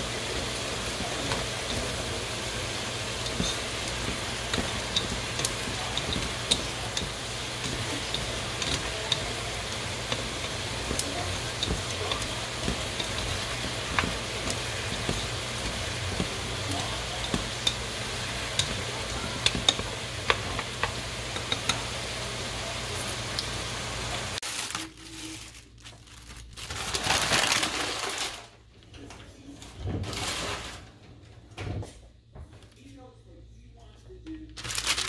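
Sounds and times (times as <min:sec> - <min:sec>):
chicken sizzling in pot: 0:00.0 - 0:24.5
chopsticks clicking against pot: 0:00.4 - 0:21.9.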